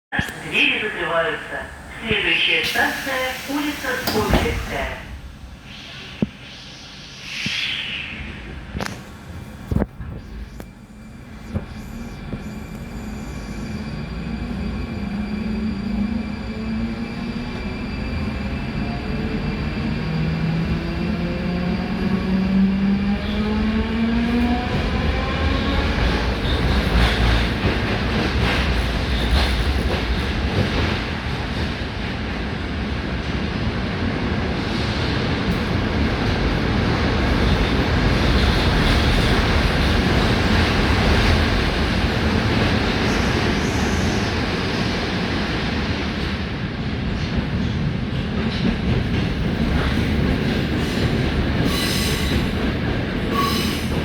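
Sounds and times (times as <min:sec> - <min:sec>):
train wheels rumbling on rails: 0:01.9 - 0:06.6, 0:08.4 - 0:54.0
brief high squeal: 0:53.3 - 0:53.9.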